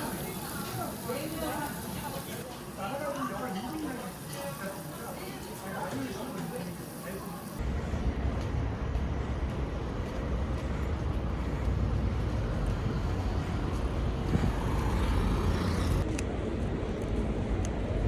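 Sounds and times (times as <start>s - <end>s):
road vehicle rumble: 7.6s - 18.0s.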